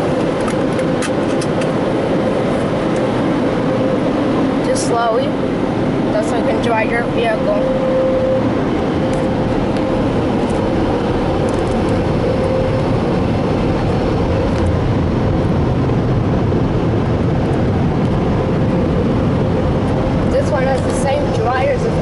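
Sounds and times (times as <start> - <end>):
constant hum: 0.0 - 22.0.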